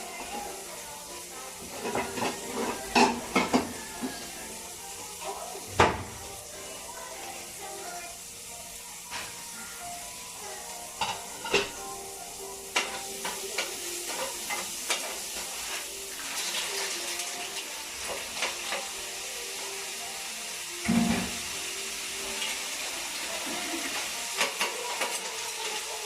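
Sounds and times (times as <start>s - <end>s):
food sizzling in a pan: 0.0s - 26.0s
utensil clacking against pan: 1.6s - 4.3s, 12.7s - 16.7s, 18.0s - 19.0s, 23.9s - 25.4s.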